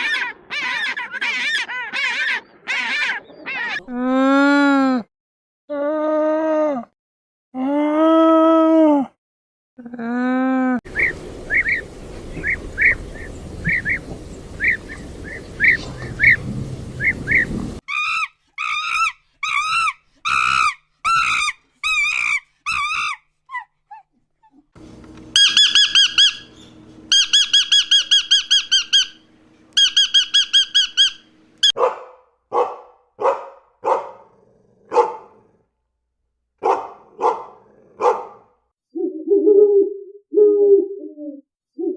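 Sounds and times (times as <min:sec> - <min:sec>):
fast trilled animal calls: 0:10.9 - 0:23.1, 0:25.4 - 0:29.2, 0:29.8 - 0:31.3
short repeated animal chirps: 0:25.4 - 0:26.5, 0:29.8 - 0:31.2
short barks: 0:31.8 - 0:34.2.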